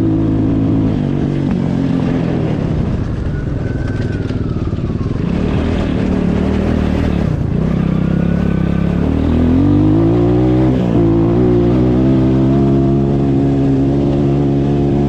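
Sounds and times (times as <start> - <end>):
vehicle engine revving: 4.4 - 15.0.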